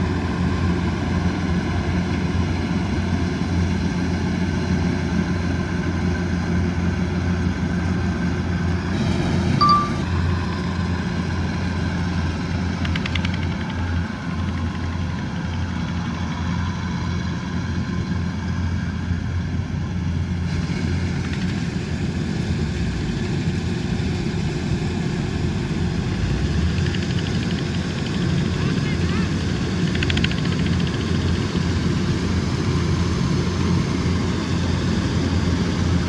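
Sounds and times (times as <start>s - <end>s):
combine harvester engine drone: 0.0s - 36.0s.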